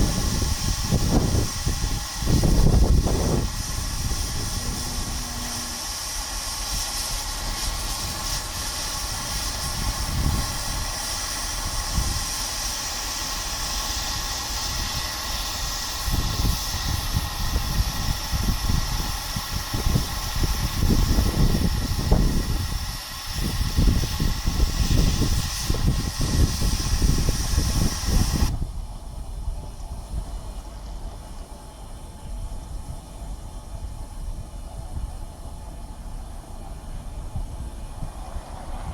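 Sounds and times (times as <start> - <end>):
steam locomotive hissing: 0.0 - 38.9
low rumbling: 2.3 - 8.0.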